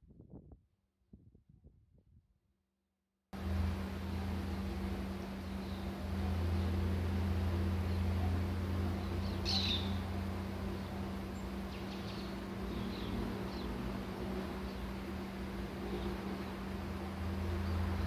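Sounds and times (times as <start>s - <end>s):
low mechanical hum: 3.4s - 18.0s
bird chirping: 9.0s - 10.1s, 10.7s - 13.8s.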